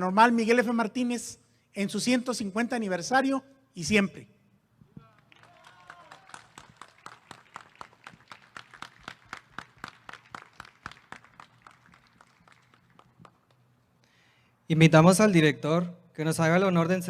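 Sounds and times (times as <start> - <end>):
small group applauding: 5.0 - 14.0.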